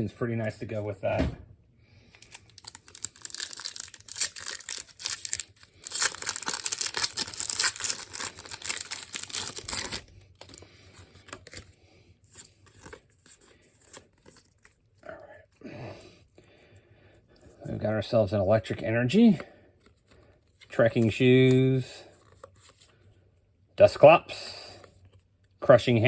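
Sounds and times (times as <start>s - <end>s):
foil wrapper crinkling and tearing: 2.1s - 11.7s.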